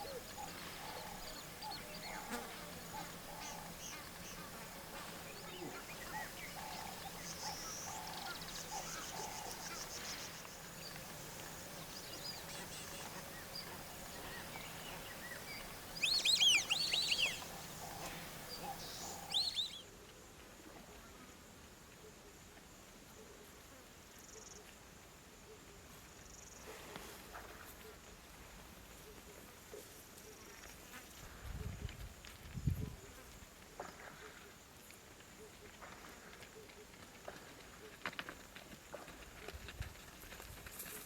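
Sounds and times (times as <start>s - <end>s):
wild birds chirping: 0.0s - 19.8s
outdoor background noise: 0.0s - 41.0s.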